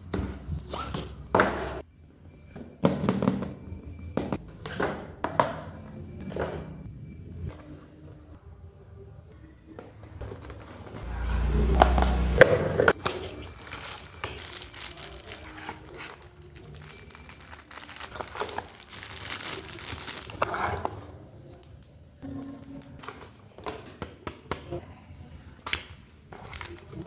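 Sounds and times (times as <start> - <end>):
plastic packaging crinkling: 13.0 - 21.0, 26.3 - 27.0.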